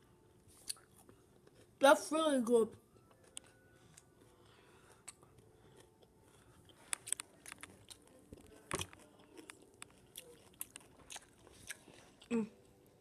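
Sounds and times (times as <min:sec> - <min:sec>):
person crunching raw vegetables: 0:04.9 - 0:12.4.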